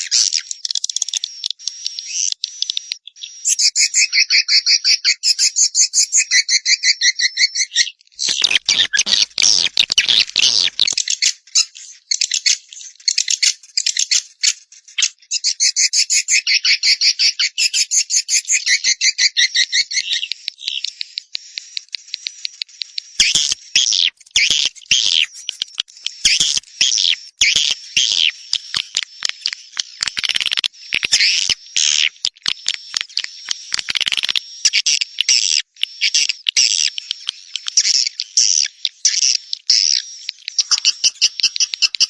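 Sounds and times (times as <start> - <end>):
songbird rattling chatter: 8.2 - 11.3, 21.9 - 35.5, 40.5 - 42.0.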